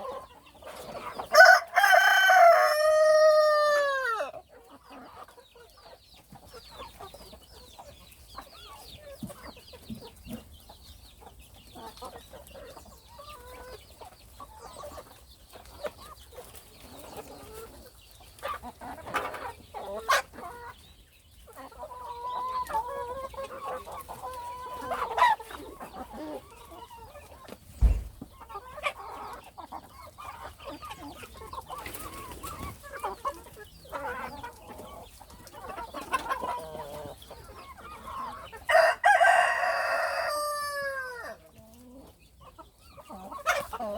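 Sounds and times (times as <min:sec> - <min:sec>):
chickens clucking: 0:00.0 - 0:43.9
dull thump: 0:27.7 - 0:28.3
sharp knocks: 0:27.8 - 0:28.3.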